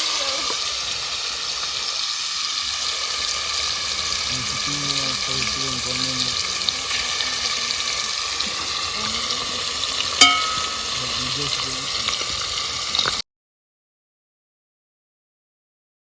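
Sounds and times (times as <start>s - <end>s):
chicken sizzling in a pot: 0.0s - 13.2s
sharp metallic clink: 10.2s - 11.0s.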